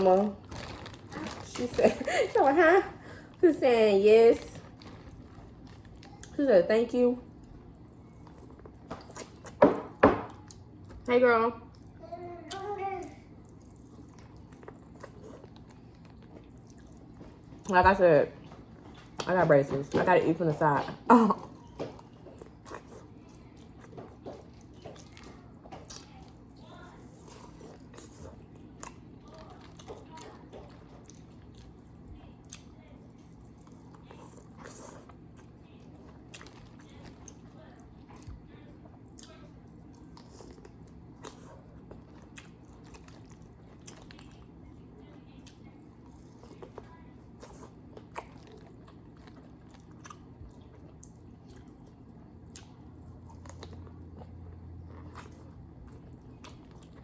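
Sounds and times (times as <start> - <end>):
person chewing seafood: 11.7 - 17.7, 21.6 - 57.0.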